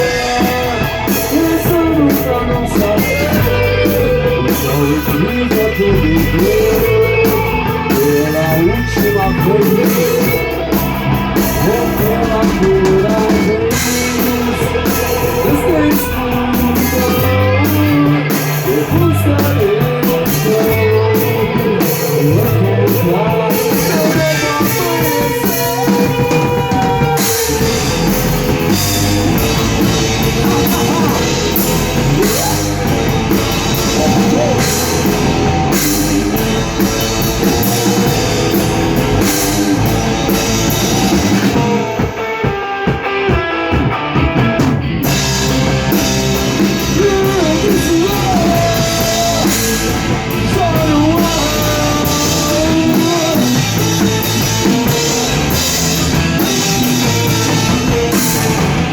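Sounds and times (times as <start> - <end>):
wavering lead line: 0.0 - 42.0
drum kit with cymbals: 0.0 - 58.9
guitars: 0.0 - 58.9.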